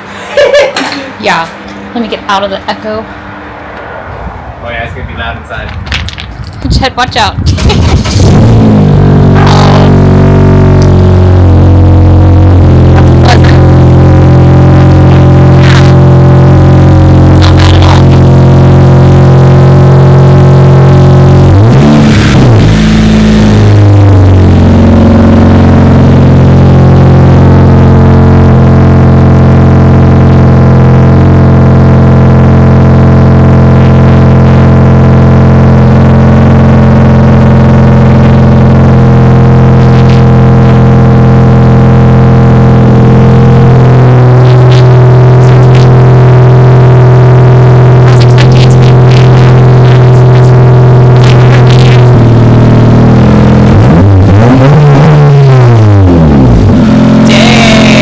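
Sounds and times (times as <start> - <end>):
car engine revving: 1.7 - 58.0.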